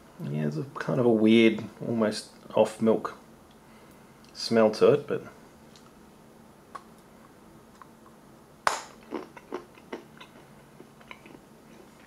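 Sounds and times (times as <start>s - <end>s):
crunchy chewing clicks: 7.7s - 11.9s
chocolate bar snapping: 8.6s - 9.0s.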